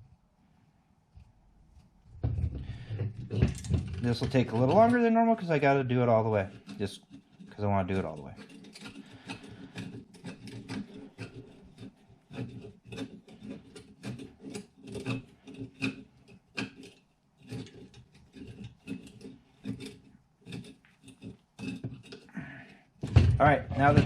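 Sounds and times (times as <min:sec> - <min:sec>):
plastic and metal parts clicking: 0:06.4 - 0:22.3.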